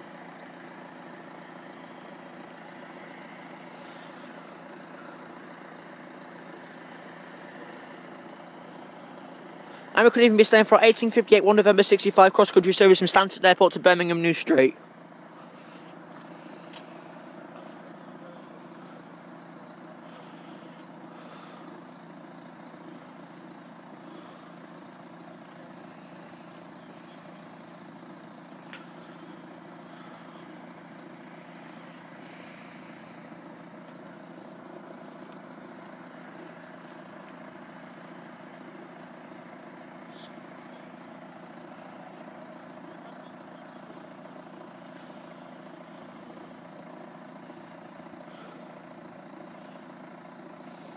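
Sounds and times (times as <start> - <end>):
low hum and rumble: 14.8 - 50.9.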